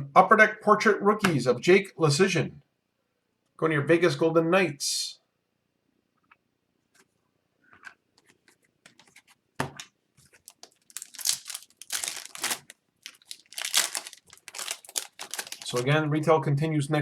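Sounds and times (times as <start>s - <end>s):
foil wrapper tearing and crinkling: 10.3s - 15.9s.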